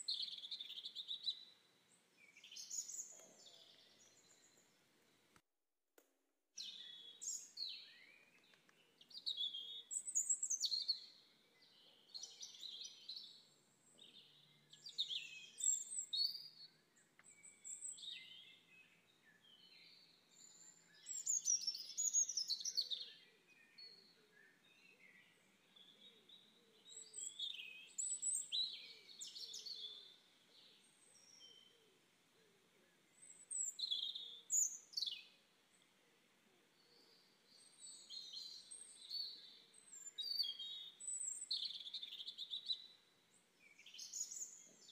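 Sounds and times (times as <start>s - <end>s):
birds chirping and singing: 36.7s - 43.0s.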